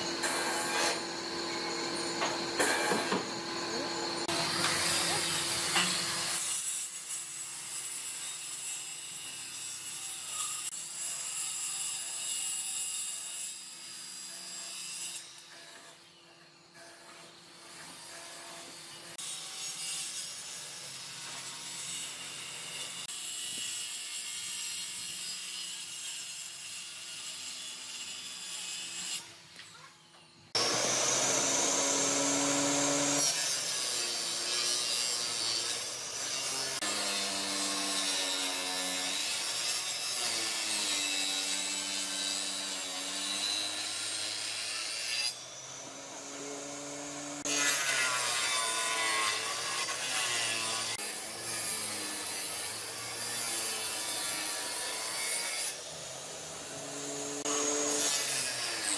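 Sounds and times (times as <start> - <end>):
power tool cutting wood: 0.0 - 29.6, 30.5 - 58.9.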